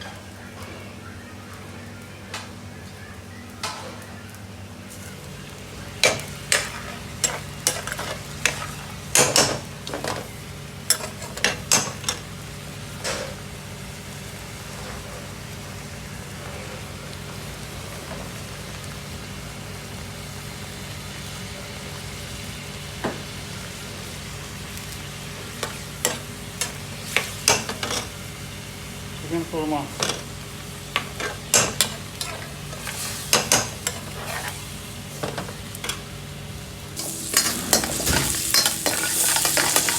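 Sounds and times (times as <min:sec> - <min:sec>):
metal utensils clanking on pans: 0:06.0 - 0:12.3, 0:25.4 - 0:28.2, 0:29.9 - 0:36.1, 0:37.0 - 0:39.9.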